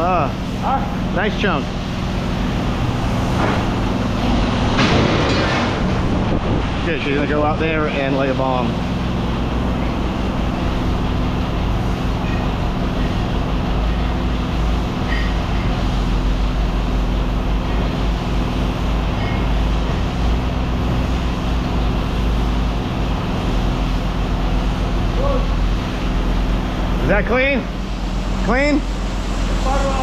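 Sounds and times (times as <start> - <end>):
vehicle engine idling: 0.0 - 4.8, 5.7 - 30.0.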